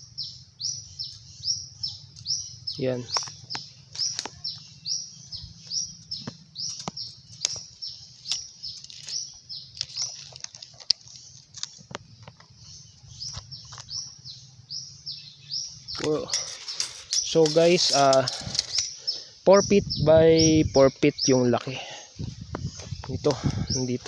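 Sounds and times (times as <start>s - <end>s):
bird chirping: 0.0s - 24.0s
dry twigs snapping: 3.1s - 4.4s, 6.2s - 12.5s.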